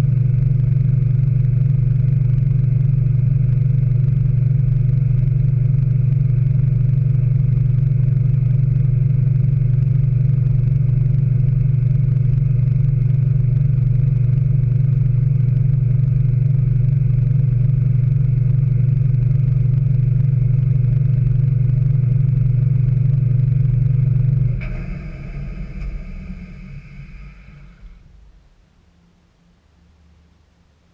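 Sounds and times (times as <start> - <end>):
washing machine spinning: 12.4 - 28.8.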